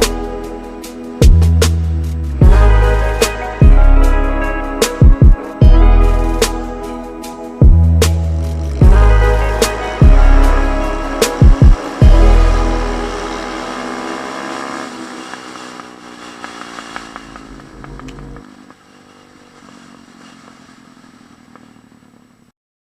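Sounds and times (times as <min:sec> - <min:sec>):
small motorbike engine running: 0:10.1 - 0:22.5.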